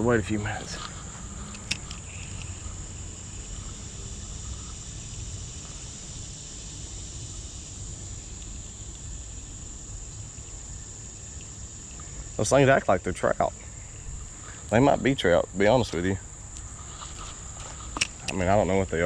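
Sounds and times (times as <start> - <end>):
insects trilling: 0.0 - 19.0
sharp click: 17.9 - 18.4.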